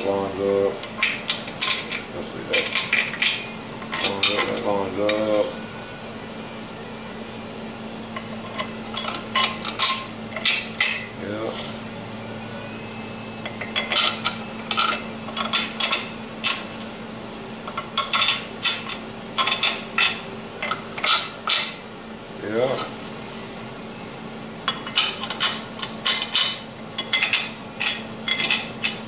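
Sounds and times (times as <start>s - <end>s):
steady low hum: 0.0s - 29.0s
steel parts clinking: 0.8s - 5.4s, 8.2s - 11.2s, 13.4s - 16.9s, 17.7s - 21.8s, 24.7s - 29.0s.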